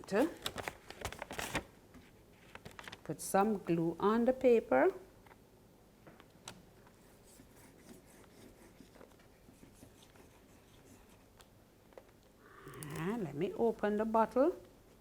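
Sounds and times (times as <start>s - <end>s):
paper rustling: 0.2s - 1.7s, 2.3s - 3.1s.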